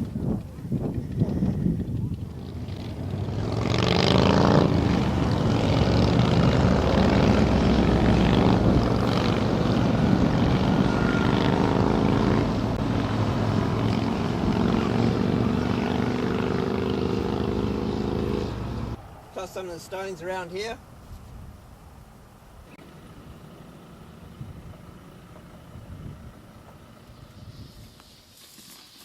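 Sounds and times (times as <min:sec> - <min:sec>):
motorcycle engine cruising: 0:00.0 - 0:19.0, 0:22.8 - 0:28.0
wind rush: 0:00.0 - 0:19.4.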